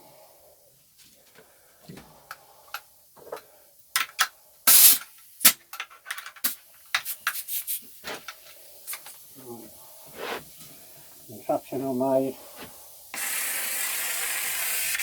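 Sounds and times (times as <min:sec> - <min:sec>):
loud rasping burst: 0:13.2 - 0:15.0.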